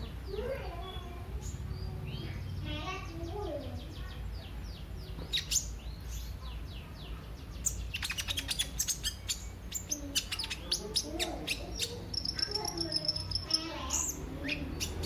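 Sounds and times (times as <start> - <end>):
sharp high bird chips: 7.6 - 15.0.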